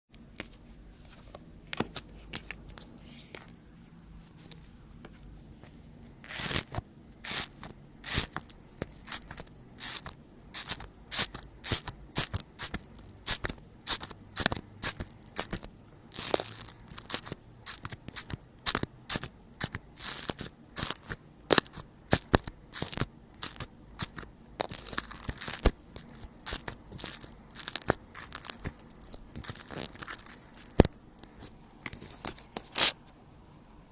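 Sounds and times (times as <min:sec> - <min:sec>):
slime clicking and crackling: 0:09.0 - 0:30.9.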